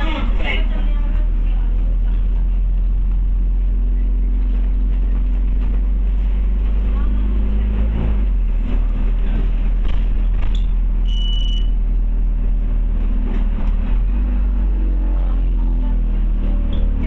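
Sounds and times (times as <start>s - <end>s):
bus engine running: 0.0s - 17.0s
short high beep: 11.0s - 11.8s.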